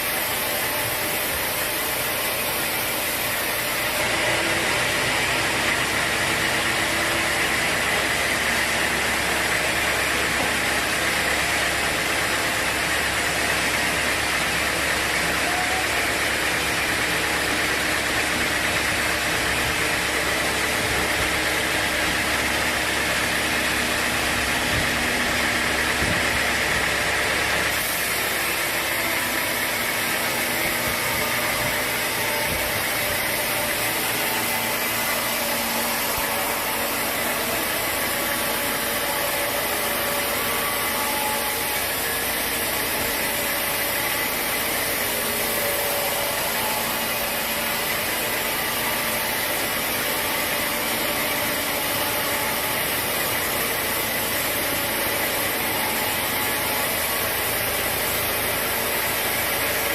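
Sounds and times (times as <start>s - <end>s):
sawmill saw running: 0.0s - 59.9s.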